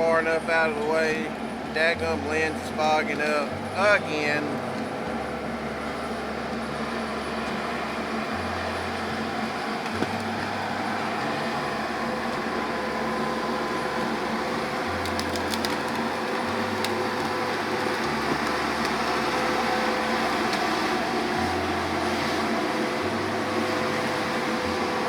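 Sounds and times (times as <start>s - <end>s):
diesel engine running: 0.0s - 25.0s
wood snapping: 14.8s - 19.6s.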